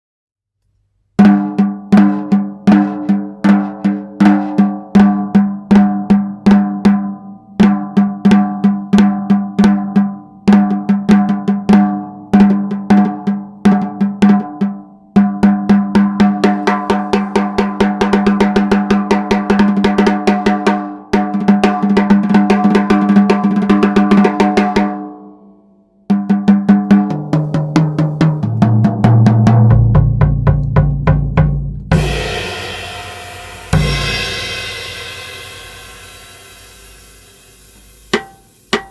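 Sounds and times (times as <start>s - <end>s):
drum kit playing: 1.2s - 6.5s, 15.4s - 25.0s, 26.3s - 38.9s
tom fill: 15.8s - 24.8s, 26.2s - 38.9s
cymbal wash: 16.5s - 19.6s, 32.0s - 38.9s.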